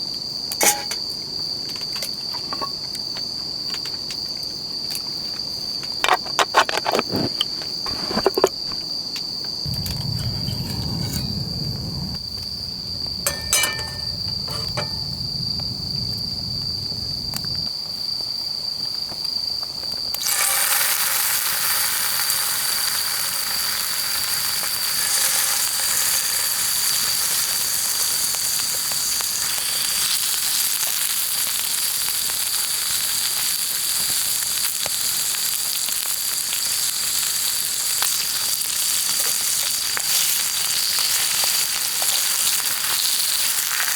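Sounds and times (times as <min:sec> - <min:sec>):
low rumble: 0:09.7 - 0:17.7
meat sizzling in a pan: 0:20.2 - 0:43.9.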